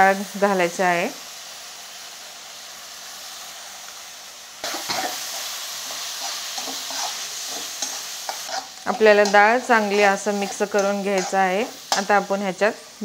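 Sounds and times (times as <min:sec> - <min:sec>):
food sizzling in hot oil: 0:00.0 - 0:13.0
spatula stirring and scraping: 0:04.6 - 0:12.1.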